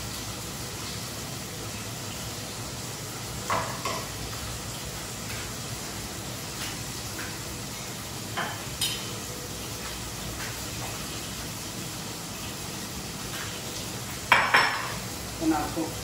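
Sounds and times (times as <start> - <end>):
onions and tomatoes sizzling: 0.0 - 16.0
utensils clattering against pan: 8.4 - 9.1.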